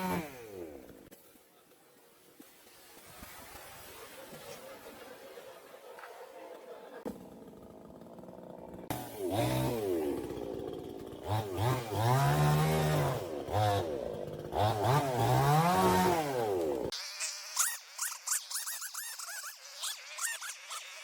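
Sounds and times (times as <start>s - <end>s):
chainsaw engine revving: 0.0s - 1.1s, 7.0s - 17.7s.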